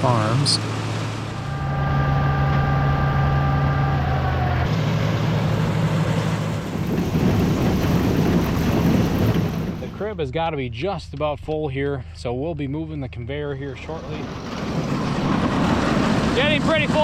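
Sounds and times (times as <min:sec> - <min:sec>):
high whine: 0:00.0 - 0:06.6, 0:09.8 - 0:17.0
heavy engine running: 0:00.0 - 0:10.2, 0:13.6 - 0:17.0
tractor engine running: 0:00.0 - 0:11.6, 0:13.5 - 0:17.0.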